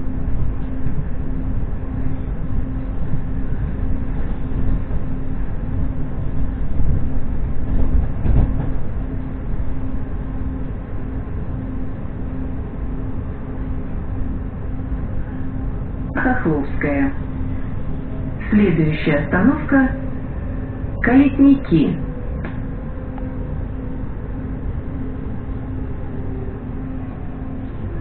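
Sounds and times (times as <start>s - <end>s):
low steady hum: 0.0s - 28.0s
train wheels rumbling on track: 0.0s - 28.0s
train wheels clattering: 7.6s - 8.9s.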